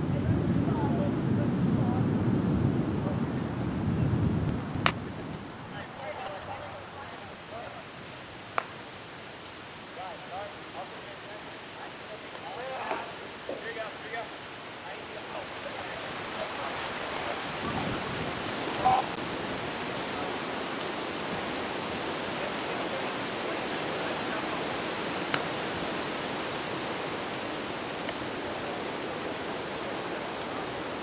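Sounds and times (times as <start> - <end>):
storm wind and rain: 0.0 - 31.0.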